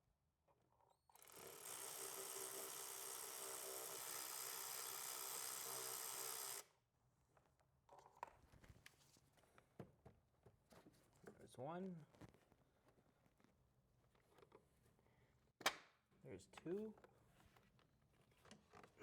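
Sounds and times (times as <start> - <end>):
handheld power tool whirring: 1.1 - 6.7.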